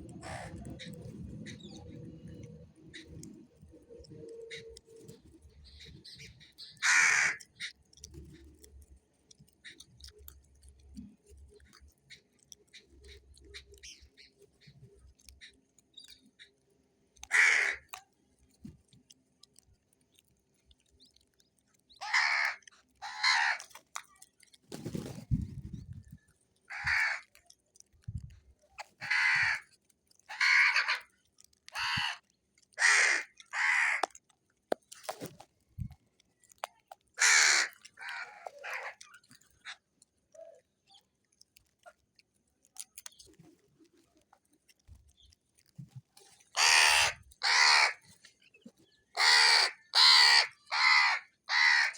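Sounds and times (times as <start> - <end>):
crow cawing: 6.8 - 7.7, 17.3 - 17.9, 22.0 - 23.6, 26.7 - 27.3, 29.0 - 29.7, 30.3 - 31.1, 31.8 - 32.2, 32.8 - 34.1, 37.2 - 39.0, 46.6 - 48.0, 49.2 - 51.9.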